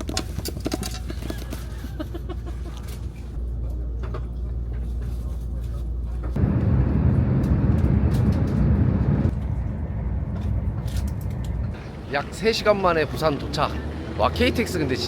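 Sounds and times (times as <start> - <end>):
train low rumble: 1.7 - 13.7.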